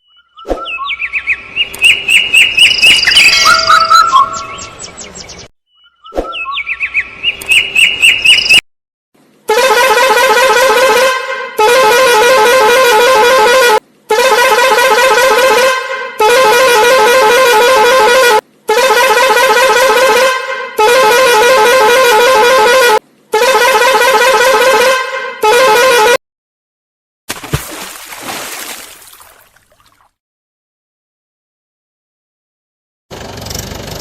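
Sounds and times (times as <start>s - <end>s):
horn honking in long blasts: 9.5s - 26.2s.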